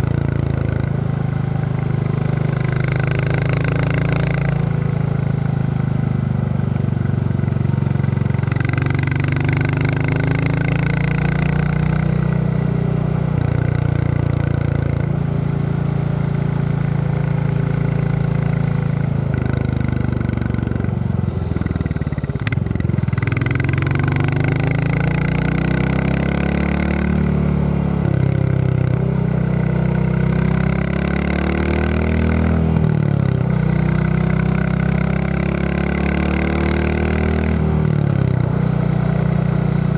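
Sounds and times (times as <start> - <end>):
motorcycle engine thumping: 19.3 - 24.6.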